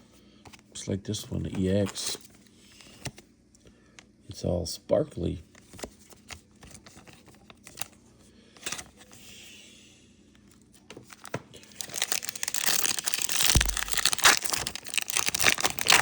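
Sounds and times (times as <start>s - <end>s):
foil wrapper tearing and crinkling: 11.2s - 16.0s.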